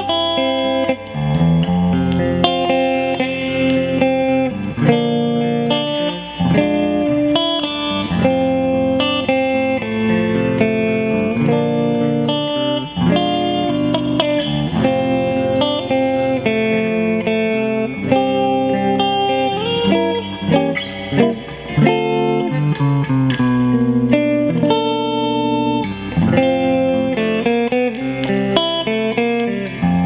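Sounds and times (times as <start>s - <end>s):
electric guitar chords and notes: 0.0s - 30.0s.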